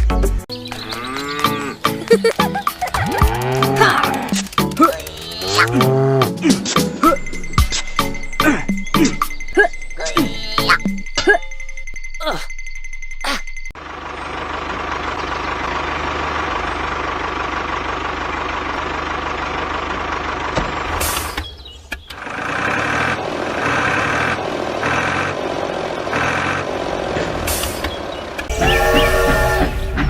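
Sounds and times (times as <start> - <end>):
vehicle engine running: 1.1 - 8.4, 13.8 - 30.0
pitched tones: 28.5 - 30.0
repeating reversing beep: 28.5 - 30.0.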